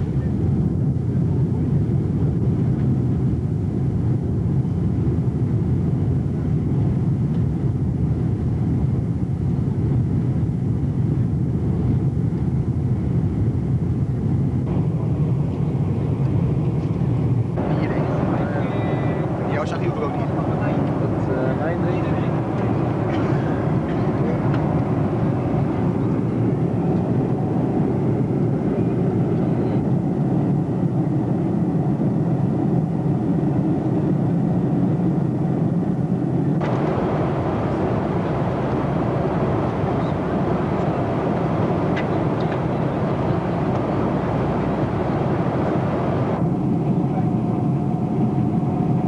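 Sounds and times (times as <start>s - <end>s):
jet engines roaring: 13.5s - 49.0s.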